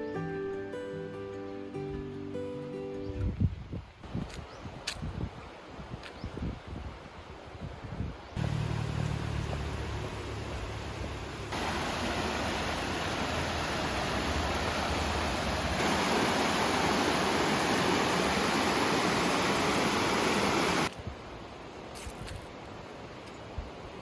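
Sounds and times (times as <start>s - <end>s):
fast-flowing water rushing: 8.4s - 20.9s.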